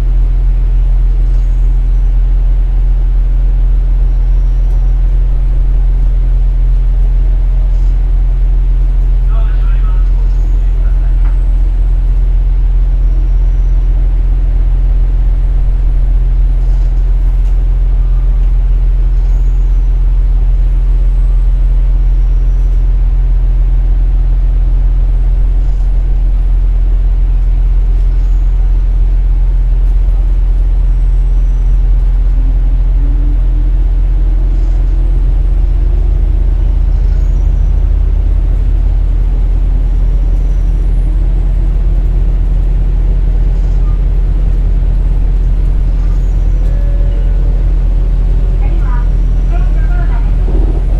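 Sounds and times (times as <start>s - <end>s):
railcar engine droning: 0.0s - 50.9s
faint rising tone: 31.6s - 38.7s, 43.9s - 50.9s.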